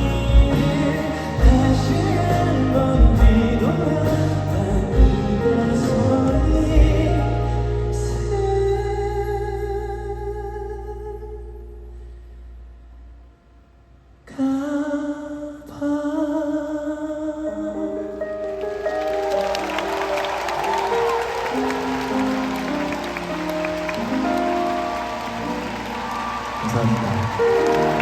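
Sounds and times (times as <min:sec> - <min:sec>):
live ballad with held chords: 0:00.0 - 0:12.9
audience applause: 0:18.4 - 0:28.0.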